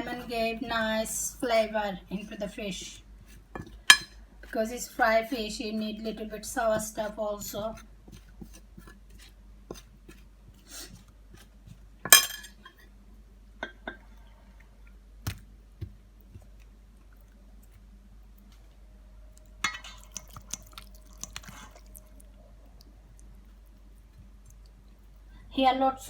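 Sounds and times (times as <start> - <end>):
dishes clinking: 3.6 - 4.2, 12.1 - 12.8, 19.6 - 20.3.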